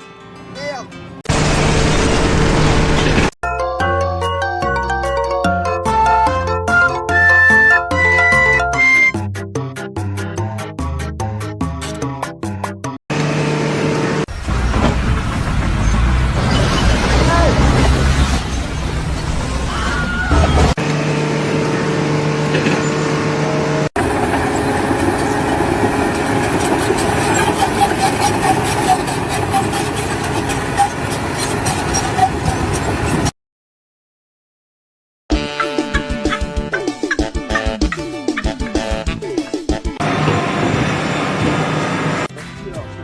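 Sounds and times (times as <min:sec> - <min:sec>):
heavy engine droning hum: 0:01.3 - 0:03.3, 0:13.1 - 0:16.4, 0:20.8 - 0:33.3, 0:40.0 - 0:42.3.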